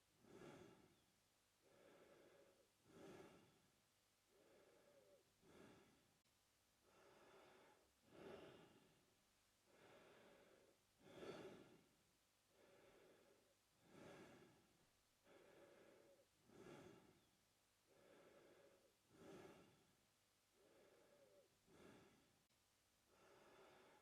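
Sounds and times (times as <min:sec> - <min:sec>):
man breathing through mouth: 0:00.2 - 0:01.0, 0:01.6 - 0:03.6, 0:04.3 - 0:06.0, 0:06.9 - 0:08.9, 0:09.7 - 0:11.8, 0:12.5 - 0:17.3, 0:17.9 - 0:19.9, 0:20.5 - 0:22.3, 0:23.1 - 0:24.0.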